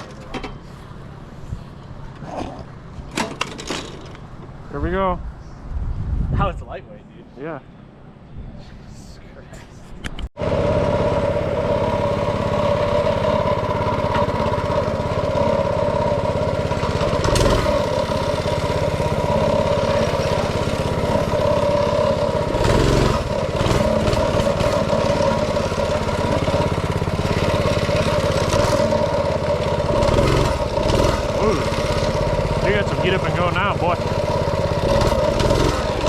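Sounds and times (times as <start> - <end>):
small engine running: 10.4 - 36.0.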